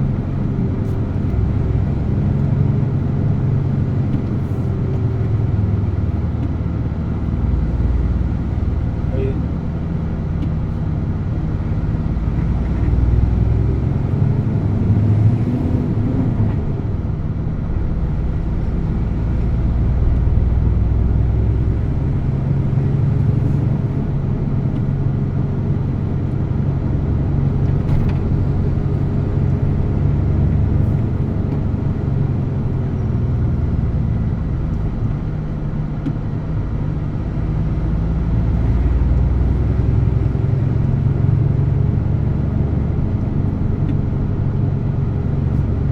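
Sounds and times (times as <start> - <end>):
truck diesel engine droning: 0.0 - 45.9.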